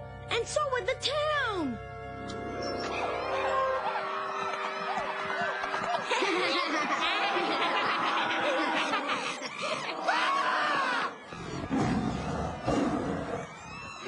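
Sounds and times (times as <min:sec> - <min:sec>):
background music: 0:00.0 - 0:14.0
cartoon children laughing and shrieking: 0:02.7 - 0:11.2.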